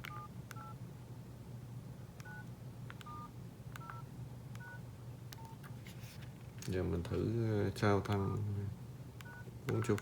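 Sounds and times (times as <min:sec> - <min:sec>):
phone keypad clicks: 0:00.0 - 0:00.7, 0:02.2 - 0:05.6.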